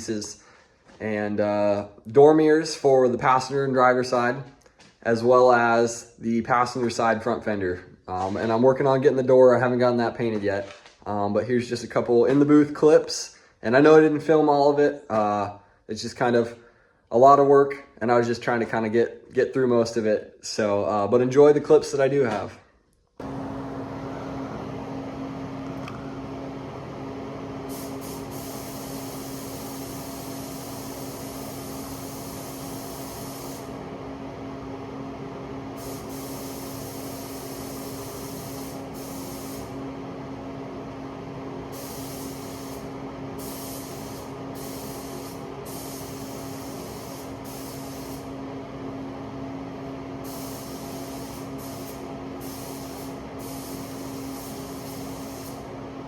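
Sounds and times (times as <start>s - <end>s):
steady machine hum: 23.2s - 56.0s
paint spray gun hissing: 27.6s - 33.9s, 35.7s - 39.8s, 41.7s - 48.4s, 50.2s - 55.8s.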